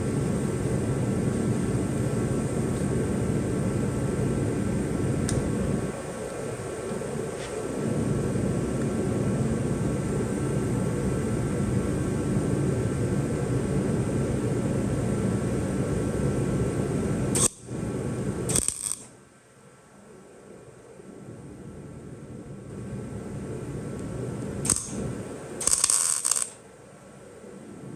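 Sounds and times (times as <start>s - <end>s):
electric welder buzzing: 0.0s - 8.2s, 15.7s - 19.2s, 23.4s - 26.7s.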